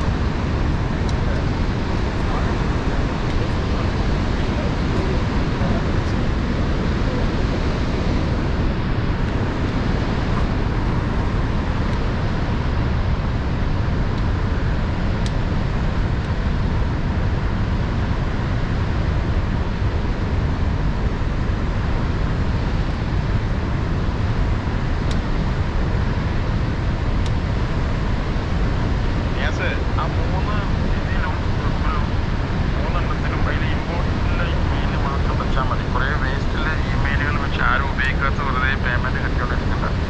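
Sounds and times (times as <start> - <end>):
car engine and road rumble: 0.0 - 30.6.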